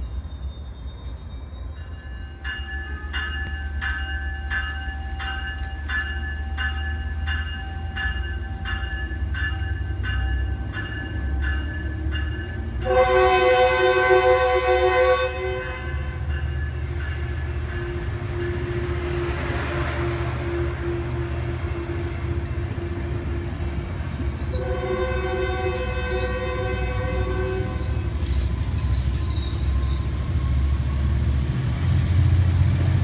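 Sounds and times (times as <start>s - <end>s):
train bell ringing: 0.0s - 19.7s, 22.4s - 31.5s
train rumble: 0.0s - 33.0s
train horn: 12.8s - 16.3s, 24.5s - 28.4s.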